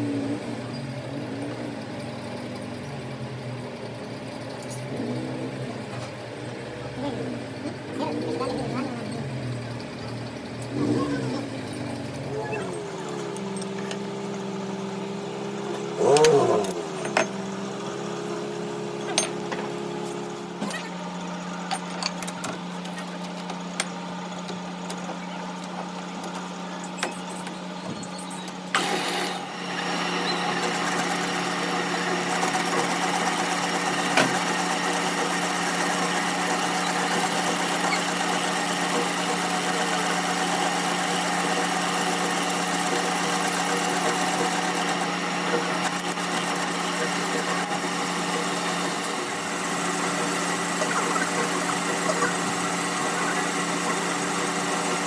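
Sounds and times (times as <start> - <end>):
workshop machinery humming: 0.0 - 55.0
machine whine and hiss: 26.9 - 55.0.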